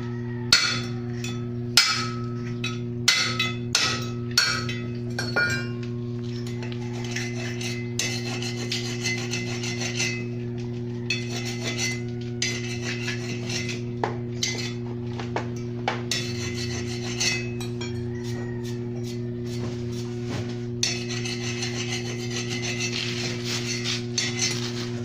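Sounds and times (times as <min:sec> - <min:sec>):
electrical hum: 0:00.0 - 0:25.0
rasping scraping on metal: 0:06.4 - 0:14.8, 0:16.1 - 0:20.0, 0:20.8 - 0:25.0.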